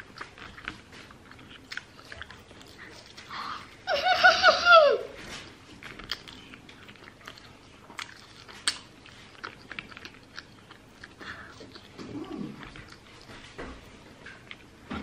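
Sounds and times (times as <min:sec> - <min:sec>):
child chewing food: 0:00.0 - 0:15.0.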